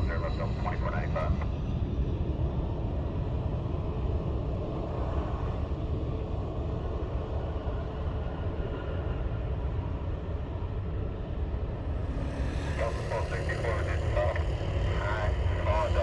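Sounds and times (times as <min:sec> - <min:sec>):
jet engines rumbling: 0:11.2 - 0:16.0.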